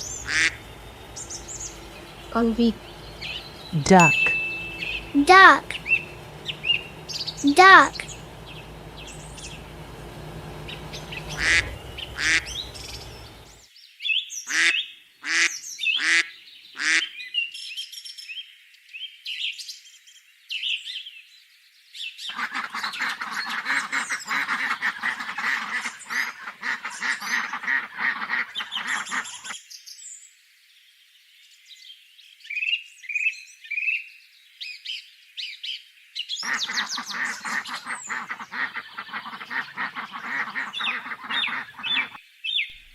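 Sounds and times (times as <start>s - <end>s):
ducks quacking: 0.0s - 4.1s, 4.8s - 13.6s, 22.3s - 29.5s, 36.4s - 42.2s.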